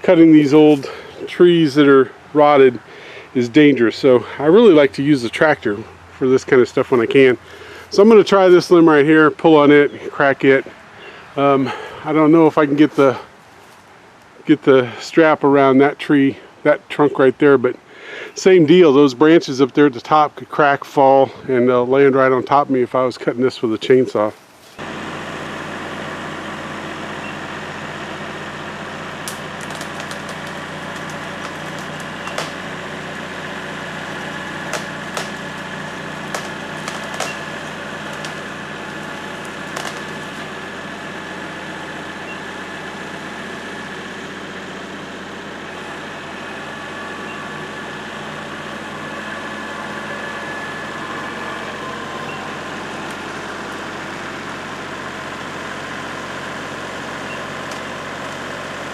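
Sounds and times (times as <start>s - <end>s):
diesel tractor engine running: 0.0s - 58.9s
rotted wood cracking and snapping: 29.2s - 40.8s.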